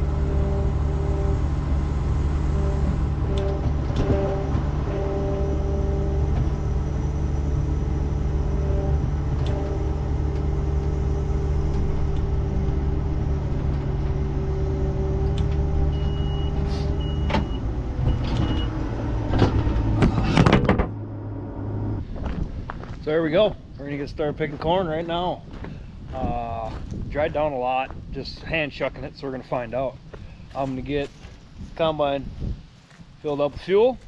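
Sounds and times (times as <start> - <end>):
diesel engine running: 0.0 - 27.6
sharp clicks and knocks: 2.8 - 4.7
short high beeps: 15.9 - 18.7.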